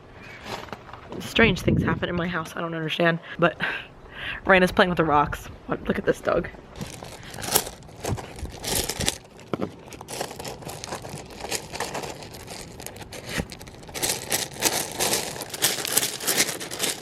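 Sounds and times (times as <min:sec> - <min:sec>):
dog scrabbling in loose rocks: 0:06.8 - 0:17.0.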